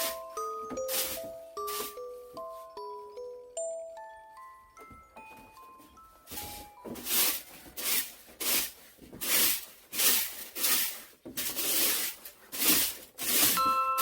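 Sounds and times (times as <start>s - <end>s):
scraping or brushing strokes: 0.8s - 2.0s, 6.3s - 13.7s.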